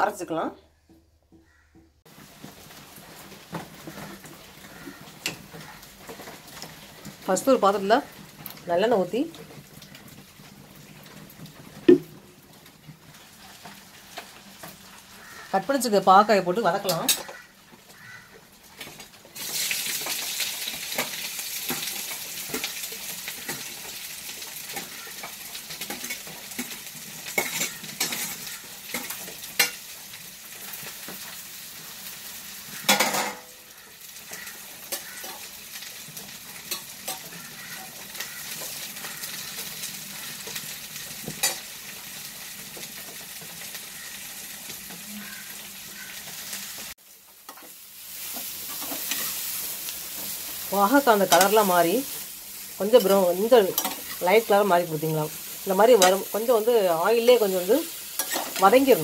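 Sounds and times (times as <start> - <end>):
vegetable slices sizzling in oil: 2.1 - 59.0
metal spatula scraping a pan: 16.7 - 18.0, 18.8 - 31.4, 32.6 - 41.7, 47.5 - 54.5, 55.4 - 59.0
pan clattering: 32.9 - 33.5.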